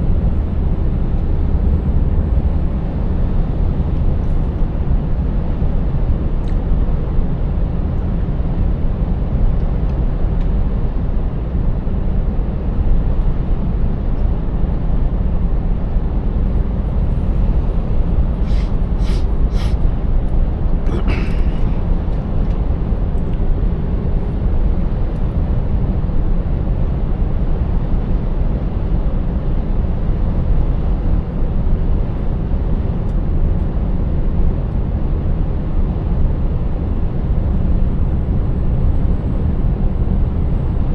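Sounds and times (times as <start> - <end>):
truck engine rumbling: 16.5 - 22.5.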